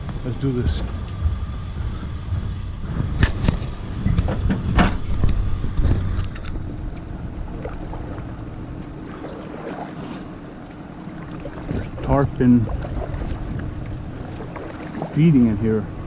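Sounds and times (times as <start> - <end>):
wind on microphone: 0.0 - 16.0
water washing: 6.6 - 16.0.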